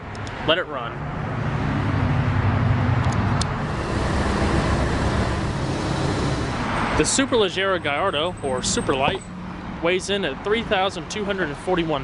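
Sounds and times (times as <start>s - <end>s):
sports car engine running: 3.2s - 8.5s.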